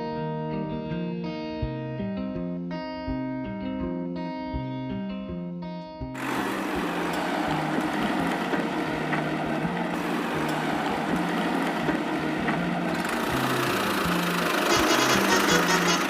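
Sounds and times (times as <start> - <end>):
small motor whirring: 6.2 - 16.0.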